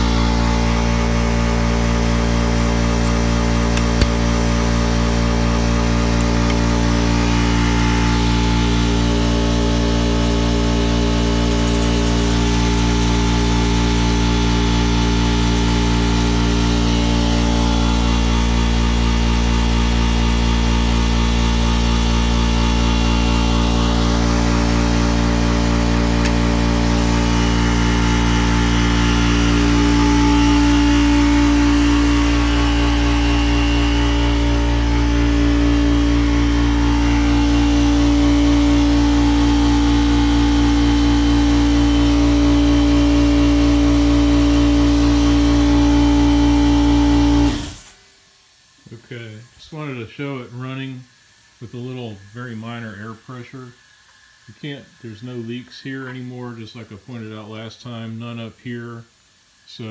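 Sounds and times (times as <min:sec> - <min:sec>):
stronger machine tone: 0:00.0 - 0:47.9
air compressor humming: 0:00.0 - 0:57.6.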